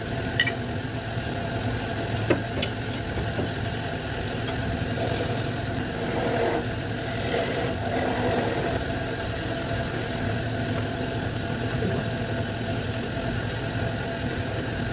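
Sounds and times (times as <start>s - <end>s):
wood lathe motor hum: 1.6s - 10.1s
rough cutting noise: 5.0s - 8.8s.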